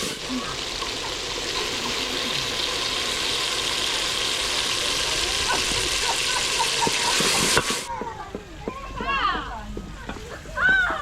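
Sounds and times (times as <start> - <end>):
food sizzling in hot oil: 0.0 - 7.9
oil popping: 0.0 - 7.9.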